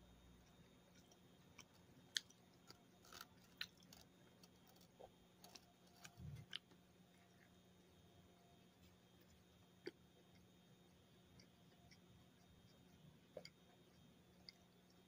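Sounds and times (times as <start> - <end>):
man chewing crispy sandwich: 0.6 - 7.6.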